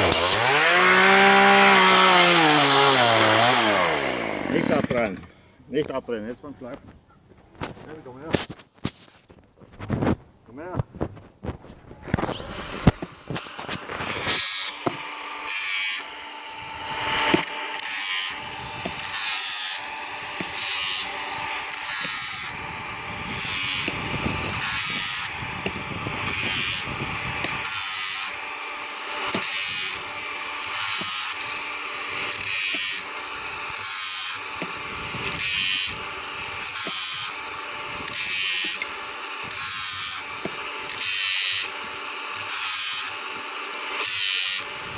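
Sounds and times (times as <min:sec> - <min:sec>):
angle grinder running: 0:00.0 - 0:05.4, 0:12.0 - 0:44.9
grinding disc on chain teeth: 0:12.3 - 0:44.9.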